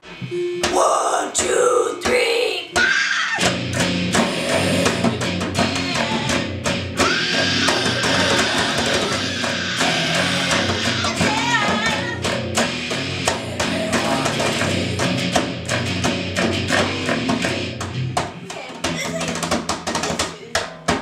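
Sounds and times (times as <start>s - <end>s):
distorted electric guitar: 0.0s - 20.2s
drum kit: 0.0s - 21.0s
person singing: 0.6s - 3.5s, 4.1s - 12.4s, 13.2s - 15.4s.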